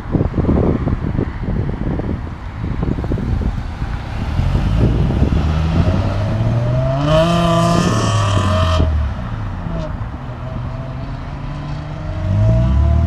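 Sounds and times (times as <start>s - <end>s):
wind buffeting microphone: 0.0s - 13.0s
car engine accelerating: 3.5s - 13.0s.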